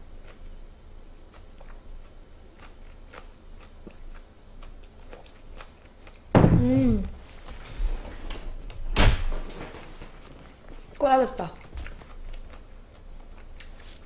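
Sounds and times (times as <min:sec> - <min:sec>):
chewing mouth clicks and smacks: 0:01.3 - 0:06.2, 0:11.6 - 0:14.0.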